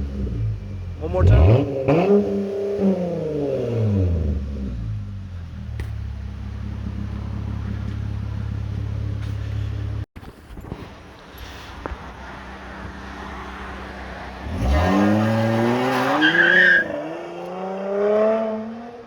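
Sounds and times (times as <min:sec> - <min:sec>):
car engine revving then idling: 0:00.0 - 0:10.1.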